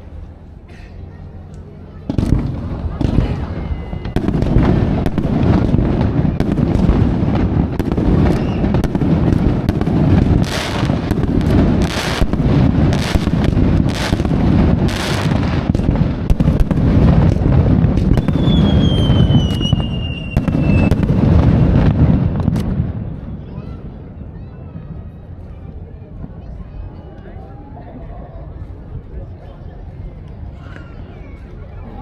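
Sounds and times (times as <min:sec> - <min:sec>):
fireworks booming and cracking: 0:02.0 - 0:24.0
hissing firework bursts: 0:02.1 - 0:23.4.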